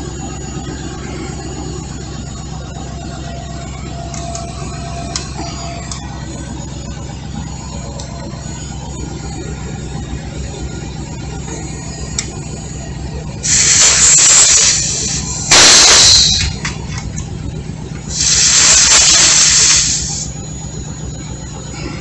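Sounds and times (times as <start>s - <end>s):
truck engine idling: 0.0s - 22.0s
compressed air hissing from tire valve: 13.4s - 16.6s, 18.1s - 20.3s.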